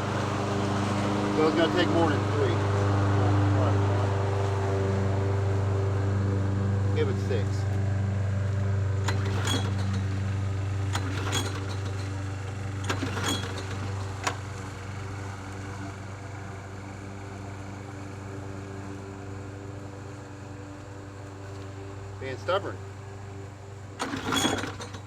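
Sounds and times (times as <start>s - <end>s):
mower starter cord pulled: 9.0s - 14.7s, 24.0s - 25.0s.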